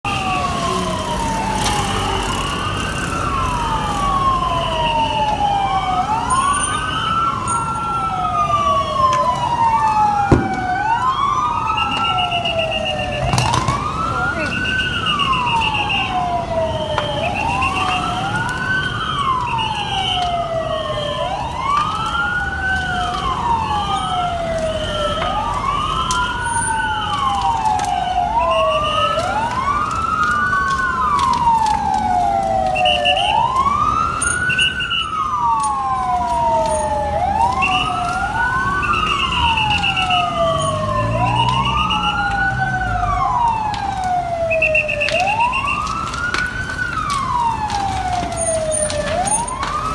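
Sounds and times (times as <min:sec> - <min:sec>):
low engine and traffic rumble: 0:00.0 - 0:49.9
pulsing high siren tone: 0:00.0 - 0:49.9
sirens wailing: 0:00.0 - 0:49.9.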